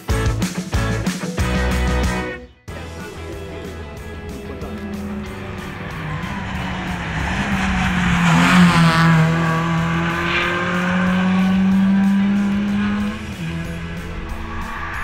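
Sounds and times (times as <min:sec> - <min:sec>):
rally car engine at high revs: 0:03.1 - 0:15.0.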